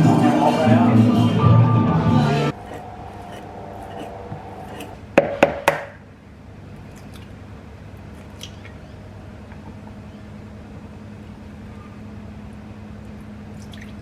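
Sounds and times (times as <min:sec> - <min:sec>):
music: 0:00.0 - 0:03.4.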